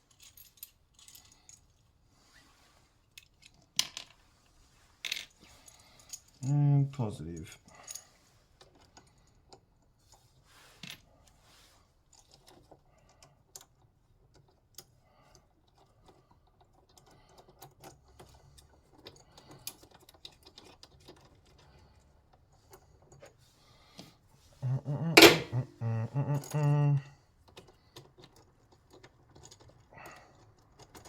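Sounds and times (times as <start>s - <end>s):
small metal parts clinking: 0.1s - 1.8s.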